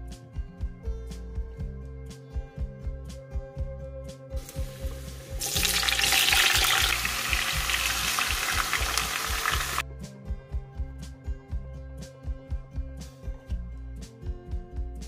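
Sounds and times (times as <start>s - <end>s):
vegetables sizzling in hot oil: 4.4s - 9.8s.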